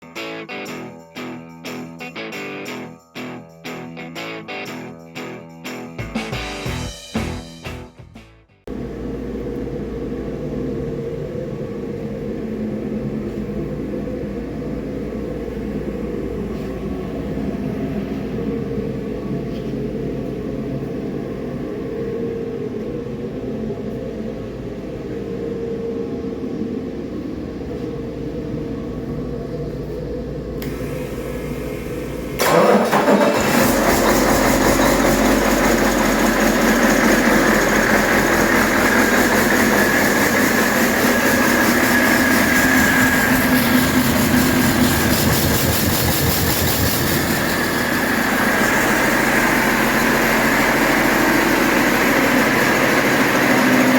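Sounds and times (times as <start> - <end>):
steady low hum: 8.7 - 32.4, 33.8 - 53.9
diesel engine running: 27.7 - 53.9.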